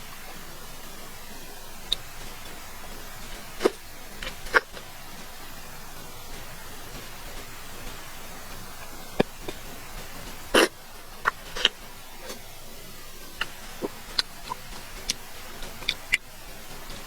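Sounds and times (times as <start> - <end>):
steady hiss: 0.0 - 17.0
chewing mouth clicks and smacks: 6.4 - 12.5, 13.4 - 16.2.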